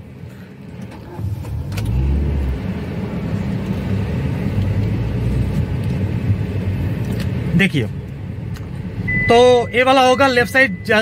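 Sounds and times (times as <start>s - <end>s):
small car engine starting: 0.7s - 6.0s.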